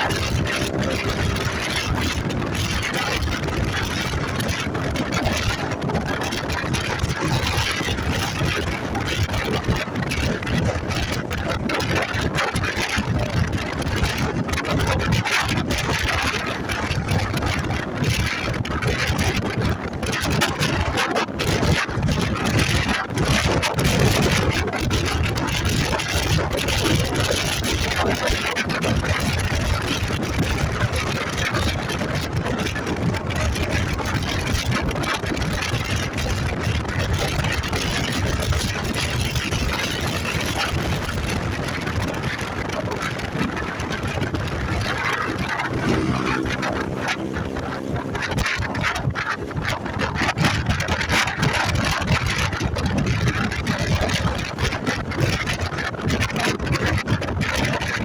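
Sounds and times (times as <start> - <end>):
motorcycle engine running: 0.0 - 19.9, 21.6 - 56.4
wind buffeting microphone: 0.0 - 58.0.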